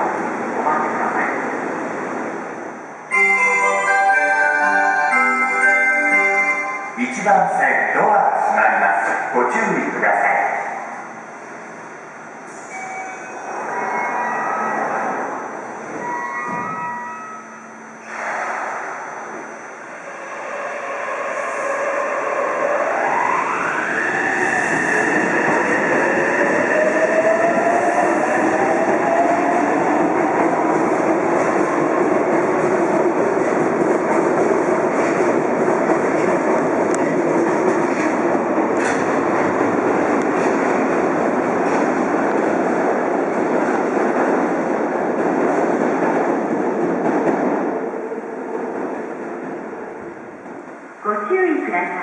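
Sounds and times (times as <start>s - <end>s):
train wheels on rails: 23.8s - 50.7s.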